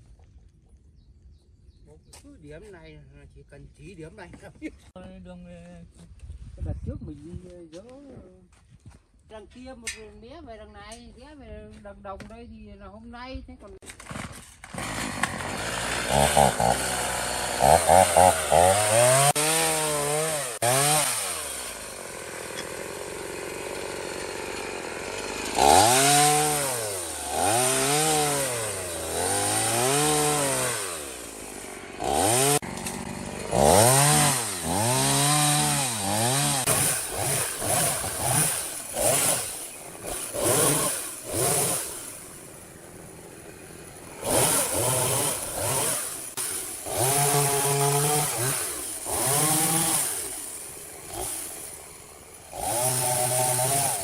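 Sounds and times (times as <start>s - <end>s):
chainsaw engine revving: 13.9s - 54.0s.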